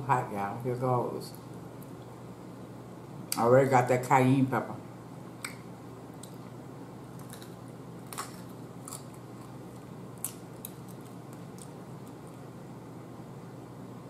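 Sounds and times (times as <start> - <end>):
crunchy chewing of raw pepper: 7.1 - 12.4.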